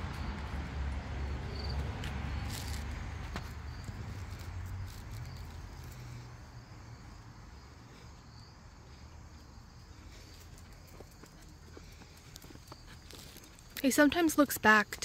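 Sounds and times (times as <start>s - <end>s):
faint insects chirping: 0.1s - 15.0s
soft footsteps: 9.3s - 14.1s.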